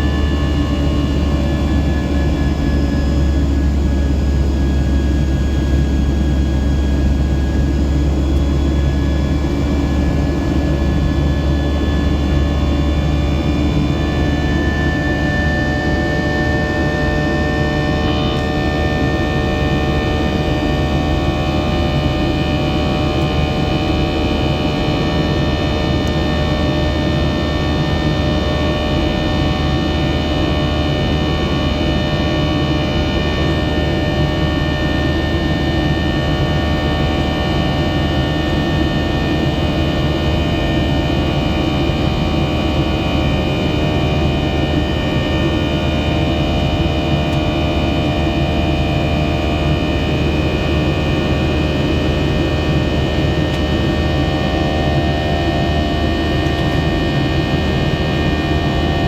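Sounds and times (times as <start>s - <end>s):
jet engine rush in cabin: 0.0s - 59.0s
jet engine whining tones: 0.0s - 59.0s.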